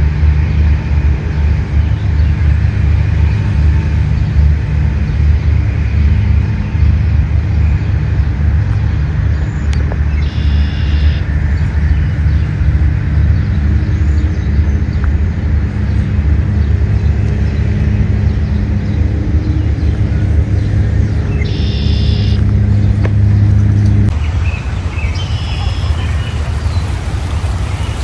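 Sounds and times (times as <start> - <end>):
low rumble: 0.0 - 28.0
high chirp: 10.1 - 11.3, 19.1 - 22.6.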